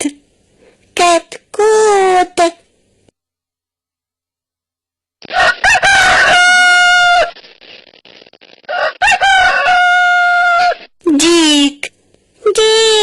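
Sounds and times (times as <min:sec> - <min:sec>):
rooster crowing: 0:05.3 - 0:07.4, 0:08.7 - 0:10.8.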